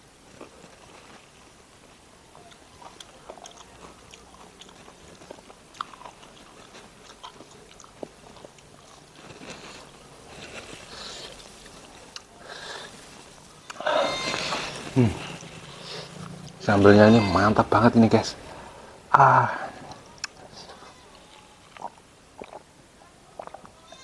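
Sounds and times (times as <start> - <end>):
chewing with mouth clicks: 0.3 - 18.8, 19.7 - 22.7, 23.3 - 23.8.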